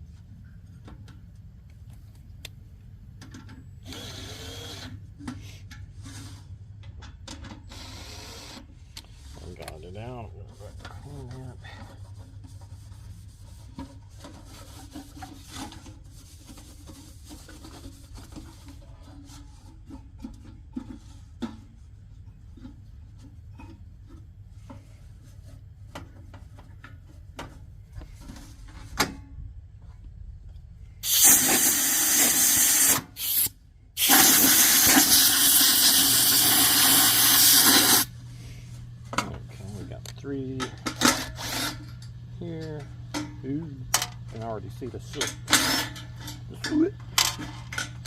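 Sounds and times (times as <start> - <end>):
compressed air blasts: 31.0 - 38.1
clicks and knocks of parts handled: 39.1 - 44.4, 45.1 - 48.0.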